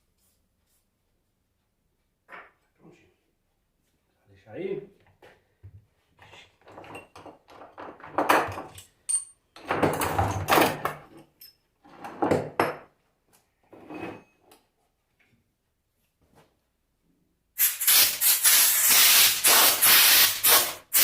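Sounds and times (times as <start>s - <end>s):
scraping and rummaging: 6.2s - 12.6s
metal tools clattering: 6.6s - 12.8s.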